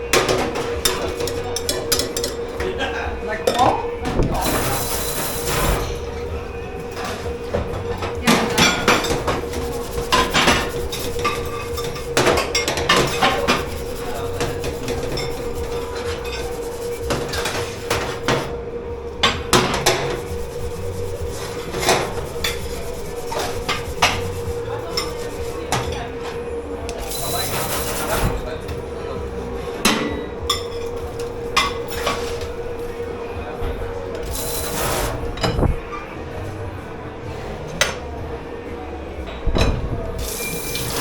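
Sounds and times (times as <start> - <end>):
dishes and cutlery clattering: 0.0 - 2.7, 7.0 - 18.6, 19.2 - 26.4, 29.8 - 32.6
steady machine hum: 0.0 - 41.0.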